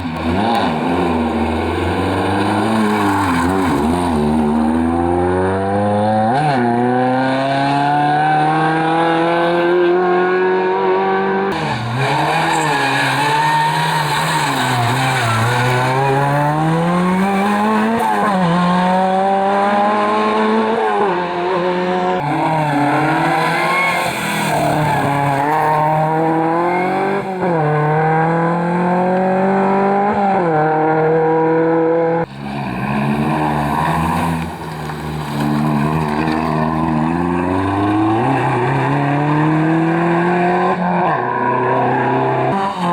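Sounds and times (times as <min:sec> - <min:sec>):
rally car engines revving: 0:00.0 - 0:42.9
tyre squeal: 0:11.5 - 0:18.5, 0:22.2 - 0:27.6.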